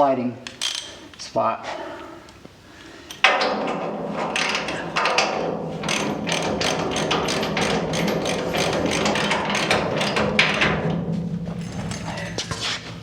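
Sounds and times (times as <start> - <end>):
ratchet wrench clicking: 0.6 - 0.9.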